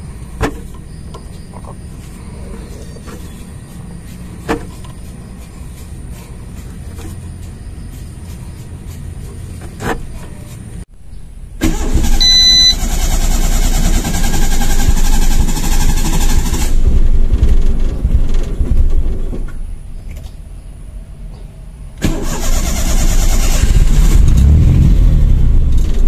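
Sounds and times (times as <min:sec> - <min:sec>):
car engine running: 0:11.6 - 0:19.9, 0:22.1 - 0:26.0
high beep: 0:12.2 - 0:12.8.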